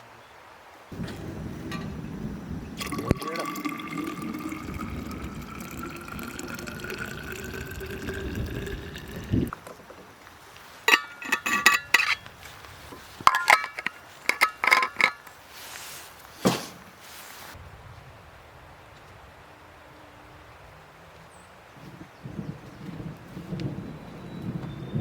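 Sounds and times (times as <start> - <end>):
water pouring into vessel: 1.0 - 9.6
cookware clinking: 2.7 - 9.5, 10.9 - 12.2
thump: 16.4 - 16.9.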